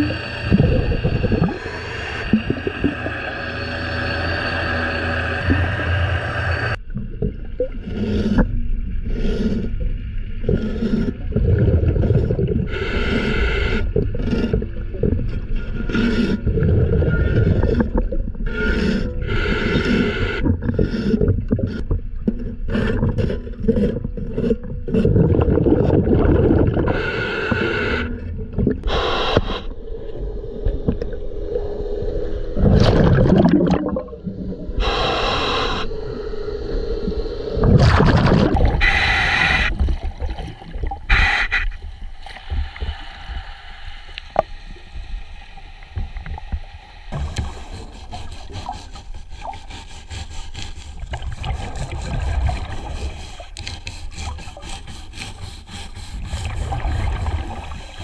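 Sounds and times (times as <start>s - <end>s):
gurgling bubbles underwater: 0.0s - 3.4s, 6.7s - 29.0s, 32.5s - 35.1s, 37.6s - 41.4s, 50.9s - 53.7s, 56.2s - 58.0s
underwater scraping of hull: 0.0s - 29.6s, 32.5s - 35.1s, 37.6s - 43.0s, 46.0s - 58.0s.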